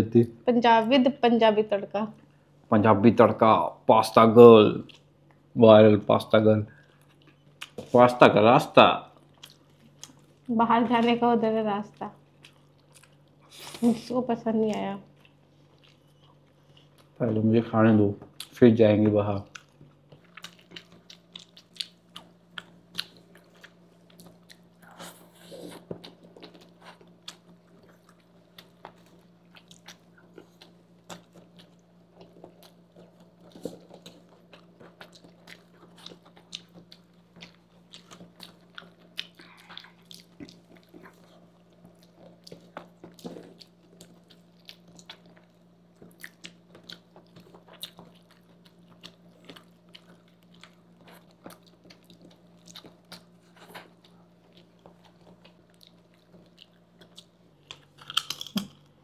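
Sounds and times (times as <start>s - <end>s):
steady low hum: 0.0s - 59.0s
wet chewing: 14.7s - 17.2s, 19.4s - 59.0s.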